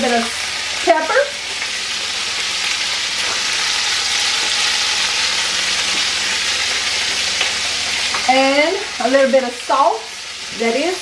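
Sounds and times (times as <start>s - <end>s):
food frying in oil: 0.0s - 11.0s.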